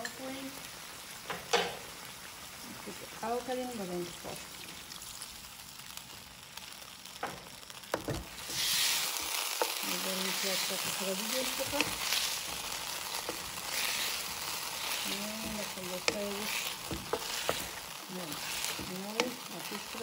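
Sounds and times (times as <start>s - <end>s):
meat sizzling in a wok: 0.0s - 20.0s
wooden spatula knocking: 15.4s - 17.8s.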